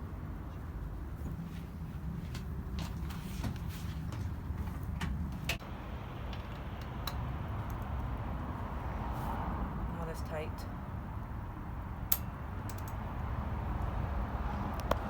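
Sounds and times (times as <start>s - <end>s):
steady low rumble: 0.0s - 15.0s
hand tools clicking and tapping: 12.1s - 13.0s.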